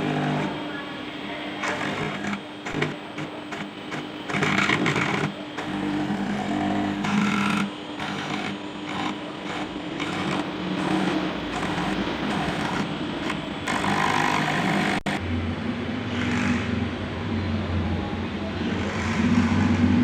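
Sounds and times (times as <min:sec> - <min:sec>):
milling machine motors humming: 0:00.0 - 0:20.0
rasping cutting noise: 0:16.1 - 0:16.8, 0:18.6 - 0:20.0.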